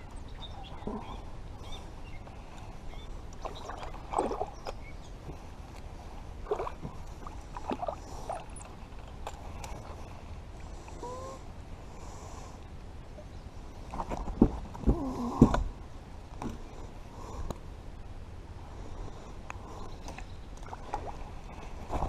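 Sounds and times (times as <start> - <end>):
low steady rumble: 0.0 - 22.0
small water splashes: 3.3 - 4.9, 6.4 - 10.0, 20.6 - 21.5.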